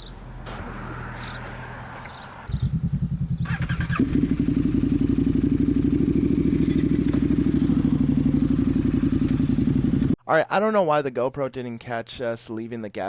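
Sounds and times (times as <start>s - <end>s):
motorcycle engine running: 2.5s - 10.2s.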